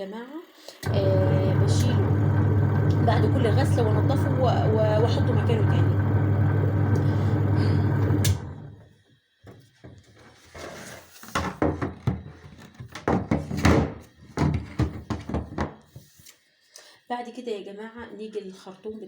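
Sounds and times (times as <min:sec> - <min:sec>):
washing machine motor humming: 0:00.8 - 0:09.0.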